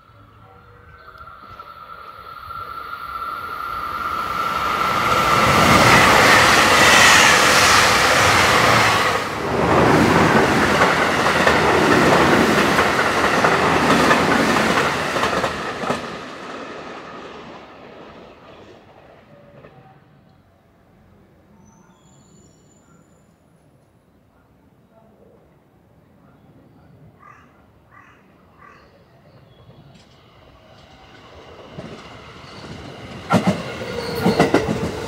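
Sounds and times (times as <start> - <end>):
train wheels clattering on rails: 3.9 - 17.3, 29.6 - 35.0.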